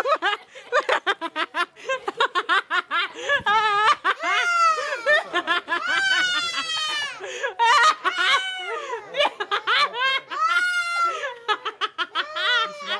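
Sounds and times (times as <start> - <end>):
children giggling: 0.0 - 12.9.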